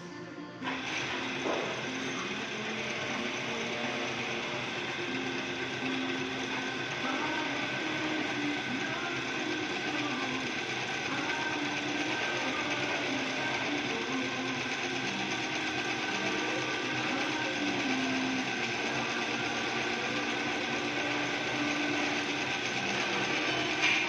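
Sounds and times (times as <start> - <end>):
drill press whirring: 0.6 - 24.0.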